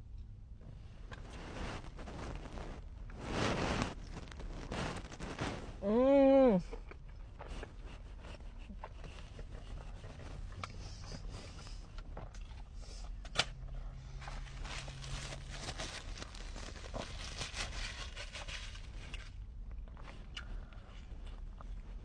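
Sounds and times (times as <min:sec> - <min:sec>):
chewing with crackles: 0:06.6 - 0:22.0.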